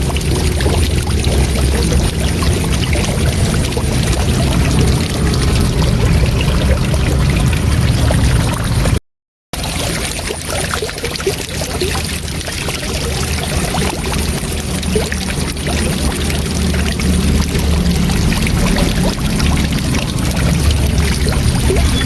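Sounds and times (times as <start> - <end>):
deep water rumble: 0.0 - 9.0, 9.6 - 22.0
water splashes: 0.0 - 9.0, 9.6 - 22.0
waterfall rushing: 0.0 - 9.0.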